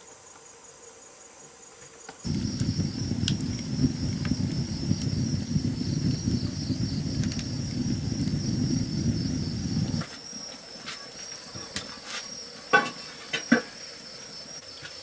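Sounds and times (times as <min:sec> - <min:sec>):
insects trilling: 0:00.2 - 0:15.0
loud low rough noise: 0:02.3 - 0:10.0.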